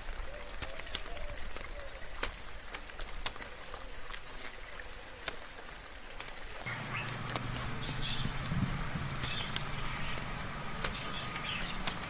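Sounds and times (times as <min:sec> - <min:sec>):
rain falling: 0:00.0 - 0:12.0
raindrops ticking on surfaces: 0:00.0 - 0:12.0
low steady hum: 0:06.7 - 0:12.0.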